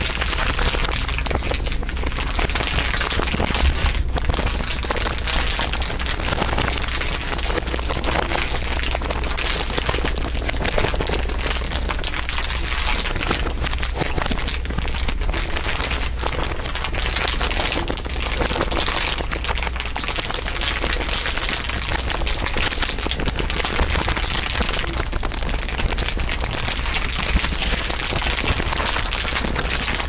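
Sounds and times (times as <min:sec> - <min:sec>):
dense crinkling: 0:00.0 - 0:30.0
low steady hum: 0:00.0 - 0:30.0.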